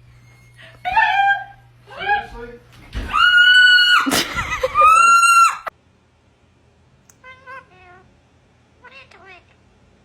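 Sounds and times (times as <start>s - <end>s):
parrot screeching: 3.1s - 4.1s, 4.8s - 5.7s.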